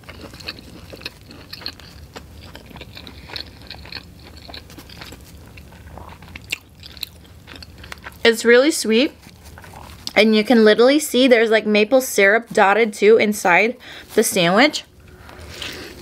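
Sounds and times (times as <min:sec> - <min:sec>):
person chewing crunchy food: 0:00.0 - 0:10.2, 0:15.0 - 0:16.0.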